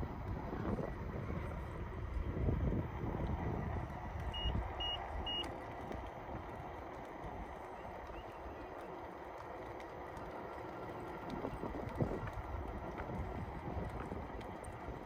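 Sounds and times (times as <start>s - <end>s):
electric unicycle rolling on pavement: 0.0s - 15.0s
short high beeps: 4.3s - 5.5s.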